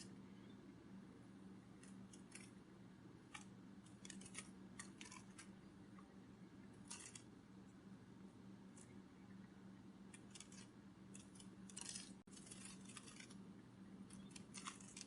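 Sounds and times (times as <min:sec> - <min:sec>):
steady low hum: 0:00.0 - 0:15.0
dry clicks and crackles: 0:01.8 - 0:02.6, 0:03.3 - 0:06.1, 0:06.8 - 0:07.3, 0:10.1 - 0:13.4, 0:14.0 - 0:15.0.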